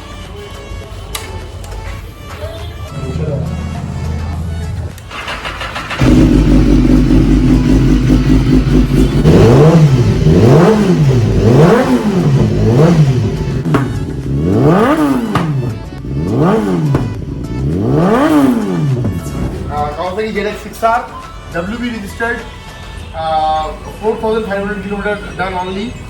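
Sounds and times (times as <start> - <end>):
motorcycle engine revving: 3.0 - 19.6.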